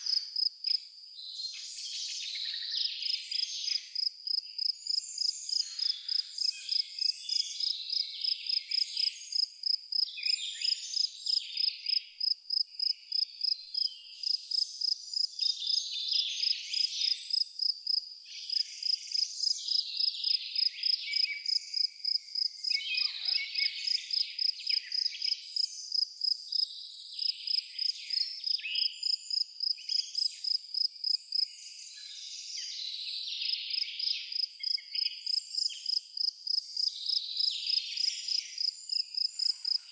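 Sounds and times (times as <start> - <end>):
cricket chirping: 0.0 - 1.8, 2.4 - 32.2, 33.4 - 39.9
birds singing: 1.3 - 12.0, 18.3 - 26.0.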